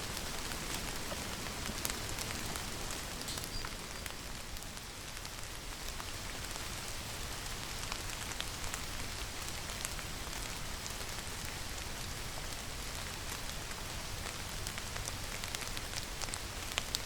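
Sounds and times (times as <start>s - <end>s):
raindrops ticking close by: 0.0s - 17.0s
steady rainfall hiss: 0.0s - 17.0s.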